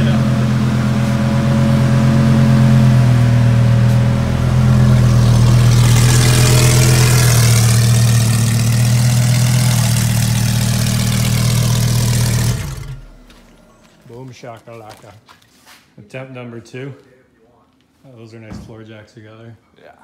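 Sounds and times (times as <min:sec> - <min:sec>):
car engine idling: 0:00.0 - 0:14.4.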